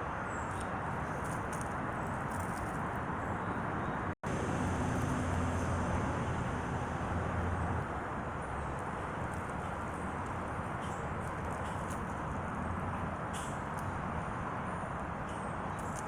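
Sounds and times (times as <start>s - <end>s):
low vehicle engine hum: 4.0s - 15.4s.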